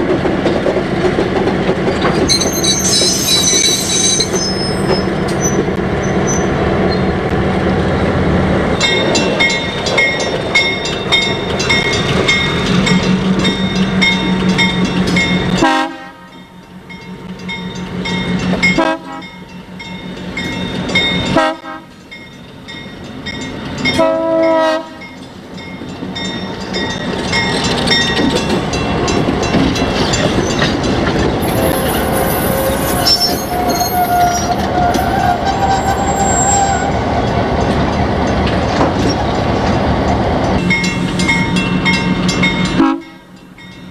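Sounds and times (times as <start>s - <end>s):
train wheels clicking over rail joints: 0.0s - 6.2s, 8.8s - 15.7s, 25.3s - 42.9s
train rumbling: 0.0s - 43.9s
train horn blasts: 15.6s - 16.4s, 18.8s - 19.4s, 21.4s - 21.9s, 24.0s - 25.1s, 42.8s - 43.2s.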